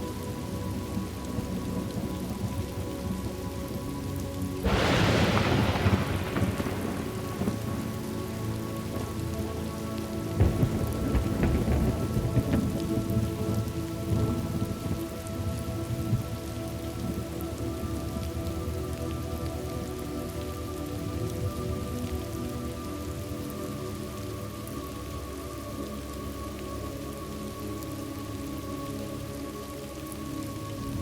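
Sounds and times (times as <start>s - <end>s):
steady rain: 0.0s - 31.0s
thunderclap: 4.6s - 9.5s, 10.4s - 16.4s
rolling thunder rumble: 4.6s - 19.0s.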